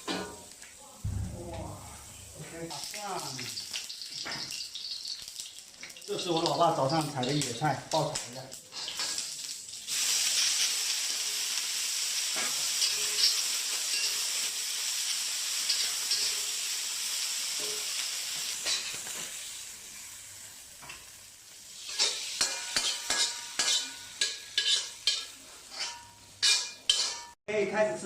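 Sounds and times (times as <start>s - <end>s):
greens sizzling in a wok: 0.0s - 27.4s
spatula clacking against wok: 21.9s - 27.4s.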